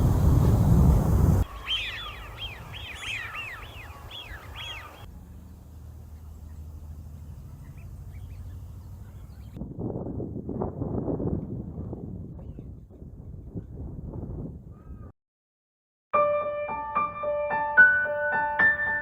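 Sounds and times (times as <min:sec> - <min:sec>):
wind rumble on microphone: 0:00.0 - 0:05.1, 0:06.8 - 0:15.1
wild birds chirping: 0:00.0 - 0:09.6, 0:14.7 - 0:15.1.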